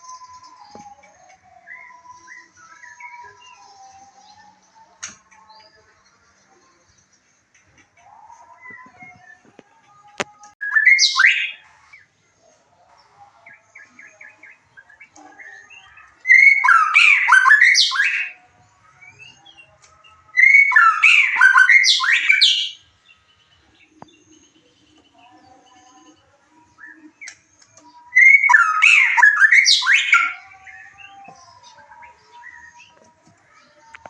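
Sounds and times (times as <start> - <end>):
bird singing whistles: 10.6 - 11.6, 16.3 - 18.4, 20.4 - 22.8, 28.1 - 31.1.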